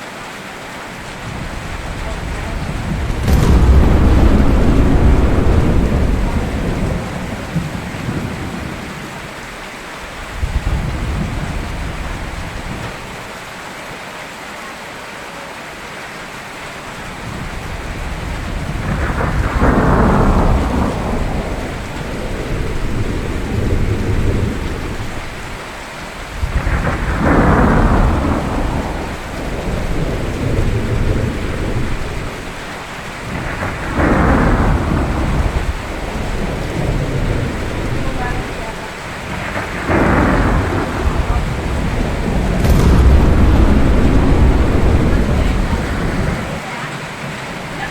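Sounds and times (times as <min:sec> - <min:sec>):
steady rain: 0:00.0 - 0:13.6, 0:15.6 - 0:46.7
thunderclaps rolling into rumble: 0:03.1 - 0:09.5, 0:18.7 - 0:25.1, 0:26.5 - 0:32.4, 0:33.3 - 0:38.5, 0:39.2 - 0:46.6.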